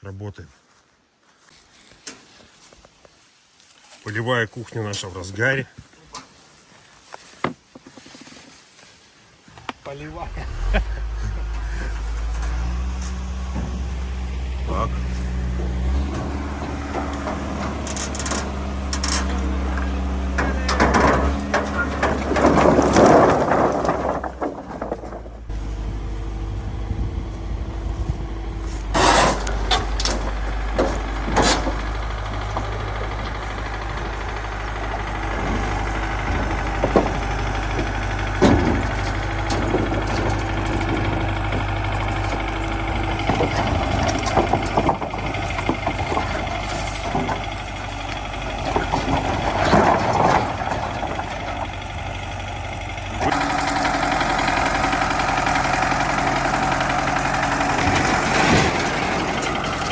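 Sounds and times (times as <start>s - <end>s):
vehicle engine running: 8.2s - 59.9s
knocks and clatter: 10.1s - 25.9s, 28.8s - 59.9s.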